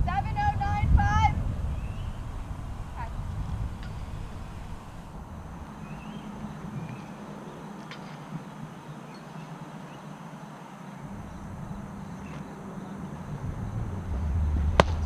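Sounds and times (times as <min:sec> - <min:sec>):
low rumble: 0:00.0 - 0:07.2, 0:11.0 - 0:15.0
outdoor background noise: 0:00.0 - 0:15.0
sharp crack: 0:14.8 - 0:15.0.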